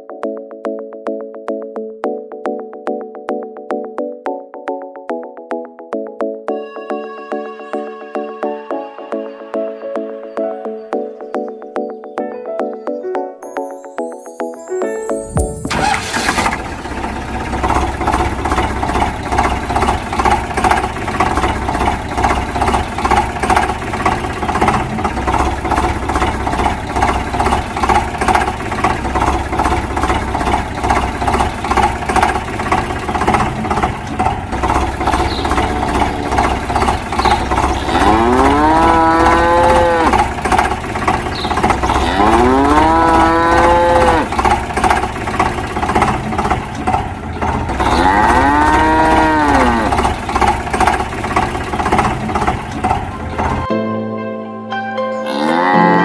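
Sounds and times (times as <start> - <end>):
rhythmic engine chugging: 15.1 - 53.7
cow mooing: 35.4 - 40.2, 41.8 - 44.3, 47.8 - 50.1, 55.2 - 56.0.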